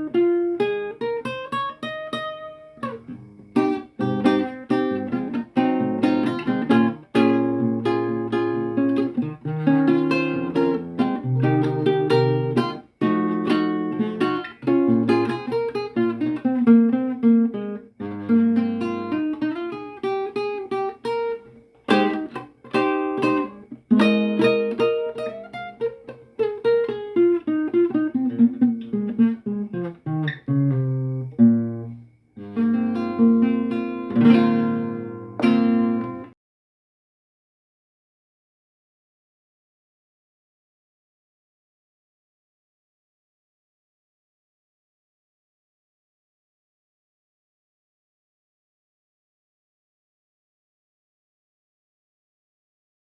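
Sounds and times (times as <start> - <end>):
acoustic guitar strumming: 0.0 - 36.3.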